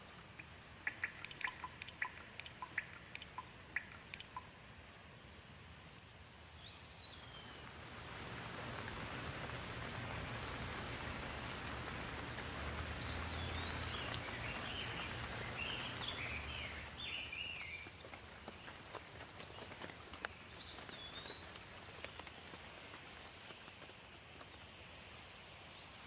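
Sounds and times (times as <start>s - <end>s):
rain falling: 0.0s - 25.7s
bird chirping: 0.3s - 4.6s, 6.3s - 18.8s, 19.4s - 22.4s.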